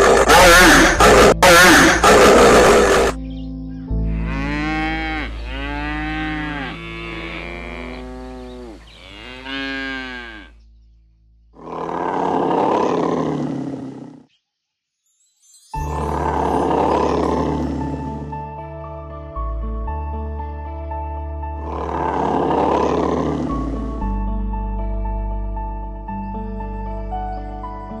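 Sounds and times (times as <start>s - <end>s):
harsh animal bellow: 0.0s - 3.2s, 4.0s - 10.6s, 11.6s - 14.2s, 15.9s - 18.4s, 21.6s - 24.1s
large animal calling: 0.0s - 3.2s, 4.0s - 10.6s, 11.6s - 14.2s, 15.9s - 18.2s, 21.6s - 23.9s.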